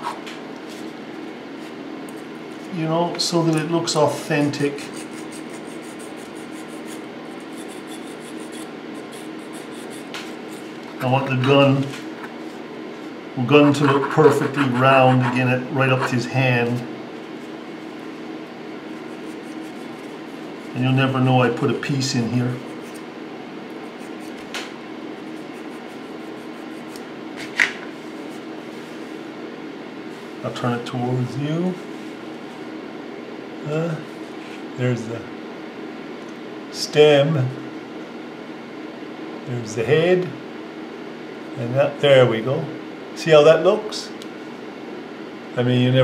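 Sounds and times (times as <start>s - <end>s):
fan humming: 0.0s - 46.0s
needle file rasping on metal: 4.8s - 10.7s.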